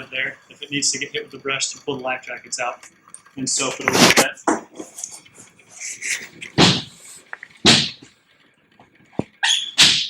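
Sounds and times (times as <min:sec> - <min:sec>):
thumps and scuffs: 0:06.6 - 0:07.0, 0:07.6 - 0:08.1, 0:08.8 - 0:10.0.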